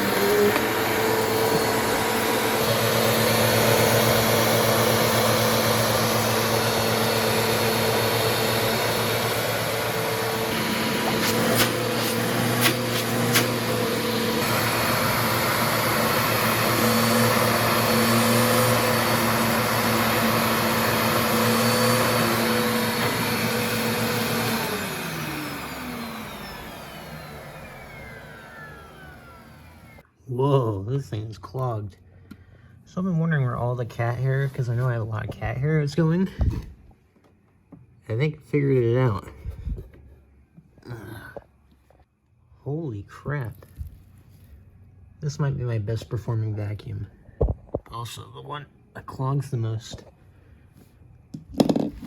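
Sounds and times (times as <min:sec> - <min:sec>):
vacuum motor winding down: 0:00.0 - 0:30.0
vacuum cleaner running: 0:00.0 - 0:30.1, 0:51.4 - 0:52.0.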